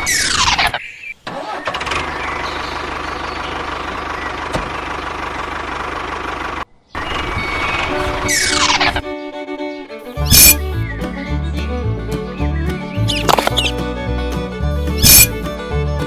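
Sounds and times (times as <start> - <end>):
motor humming: 10.2 - 16.0.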